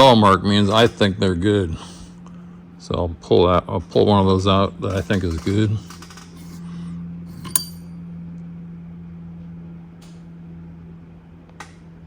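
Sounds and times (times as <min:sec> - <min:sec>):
steady low hum: 0:00.0 - 0:12.0
metallic clink with ring: 0:07.3 - 0:08.0.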